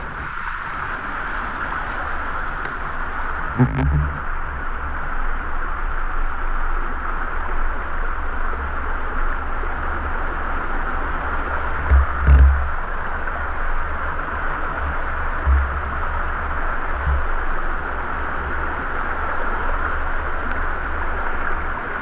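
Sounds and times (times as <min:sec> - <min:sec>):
wind buffeting microphone: 0:00.0 - 0:05.4, 0:09.0 - 0:19.4.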